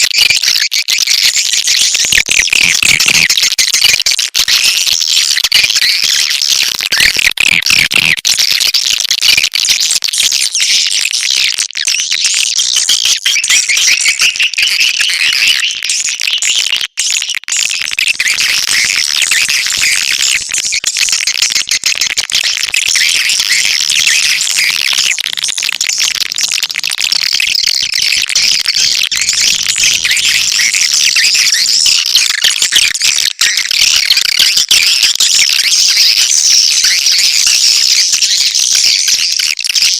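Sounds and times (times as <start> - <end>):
swiftlets twittering: 27.4 - 31.7.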